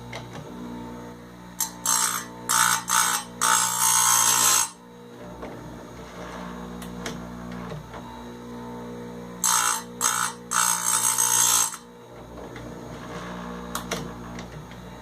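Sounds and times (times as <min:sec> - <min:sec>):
grinder motor humming: 0:00.0 - 0:15.0
grinding wheel on chain: 0:09.4 - 0:11.8.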